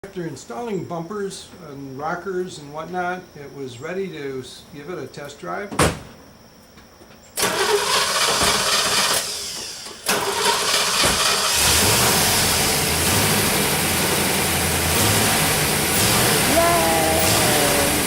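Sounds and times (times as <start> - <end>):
car engine starting and running: 7.4 - 18.0.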